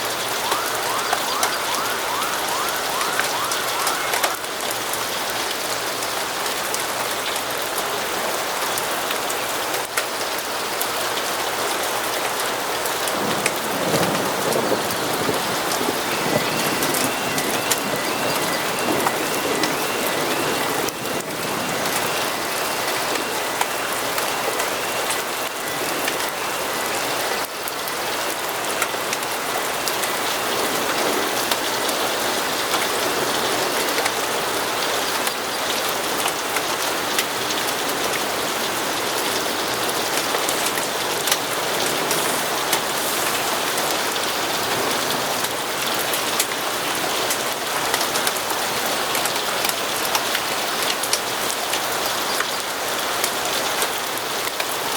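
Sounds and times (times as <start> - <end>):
steady rain on a surface: 0.0 - 54.9.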